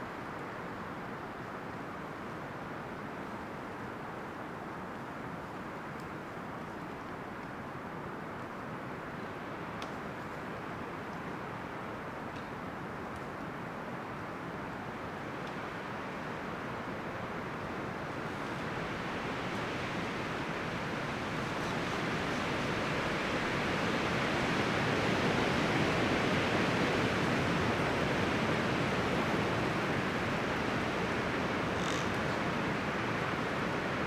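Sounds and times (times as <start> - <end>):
wind rustling tree leaves: 14.7 - 34.0.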